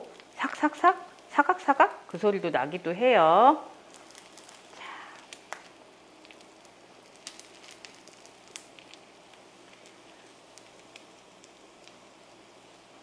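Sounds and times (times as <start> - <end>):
food sizzling in a frying pan: 3.7 - 13.0.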